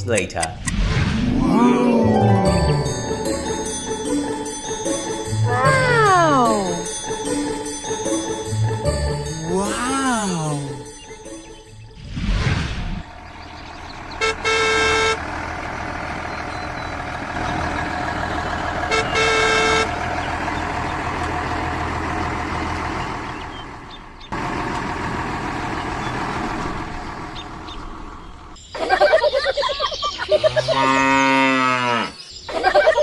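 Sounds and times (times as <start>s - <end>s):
vehicle engine running: 13.0s - 28.6s
horn honking: 14.2s - 15.3s, 18.8s - 20.1s.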